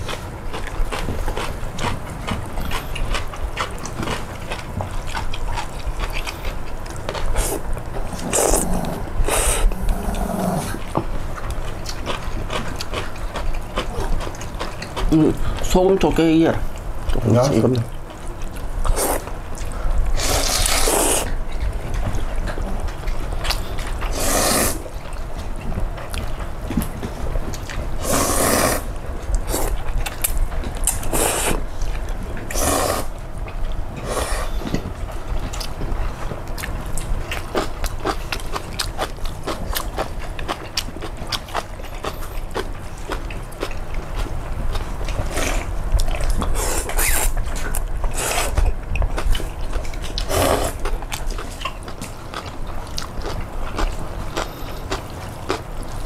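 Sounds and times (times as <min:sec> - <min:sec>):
chewing: 0:00.0 - 0:56.0
noodle slurping: 0:07.3 - 0:10.9, 0:20.2 - 0:21.4, 0:24.1 - 0:24.9, 0:28.0 - 0:28.9, 0:30.8 - 0:31.6, 0:32.5 - 0:33.2, 0:48.1 - 0:48.6, 0:50.2 - 0:51.0.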